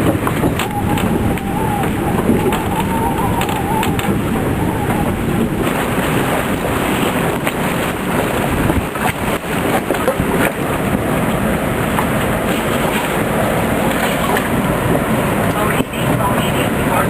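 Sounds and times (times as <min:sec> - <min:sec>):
rain: 0:00.0 - 0:17.0
wind gusting on microphone: 0:00.0 - 0:17.0
wavering whistle: 0:00.4 - 0:06.5.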